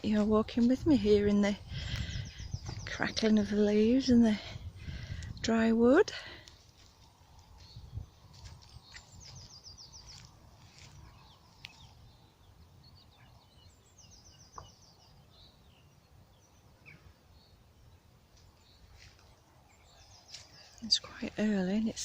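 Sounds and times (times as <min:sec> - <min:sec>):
footsteps on dry leaves: 0:06.5 - 0:11.8.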